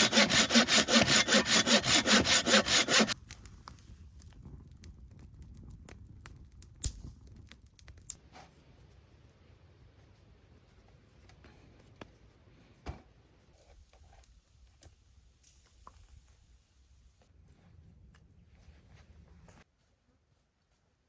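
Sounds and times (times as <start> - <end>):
hand saw cutting wood: 0.0 - 3.2.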